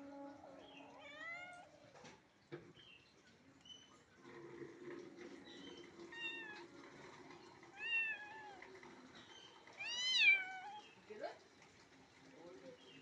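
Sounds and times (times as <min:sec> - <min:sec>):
kitten meowing: 0:07.8 - 0:08.6, 0:09.8 - 0:10.8.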